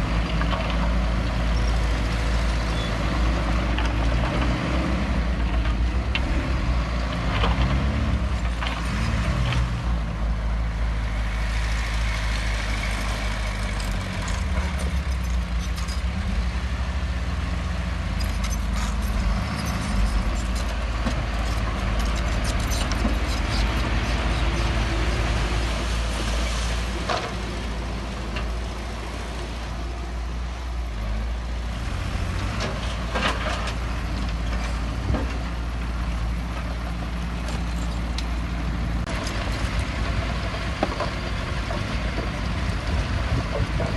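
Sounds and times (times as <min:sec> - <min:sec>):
heavy diesel machinery running: 0:00.0 - 0:43.9.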